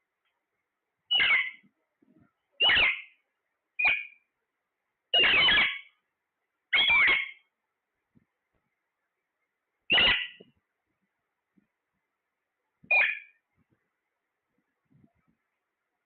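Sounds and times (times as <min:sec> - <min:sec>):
parrot shrill calls: 0:01.1 - 0:01.6, 0:02.6 - 0:03.2, 0:03.8 - 0:04.2, 0:05.1 - 0:05.9, 0:06.7 - 0:07.4, 0:09.9 - 0:10.4, 0:12.9 - 0:13.4.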